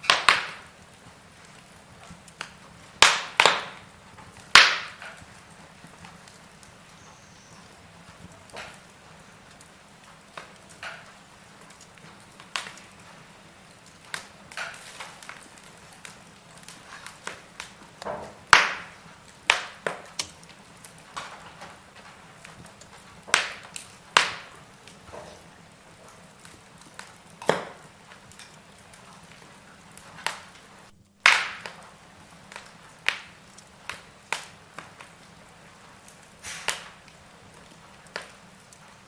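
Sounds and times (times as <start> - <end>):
faint steady hiss: 0.0 - 39.0
logs crackling and popping in fire: 0.0 - 39.0.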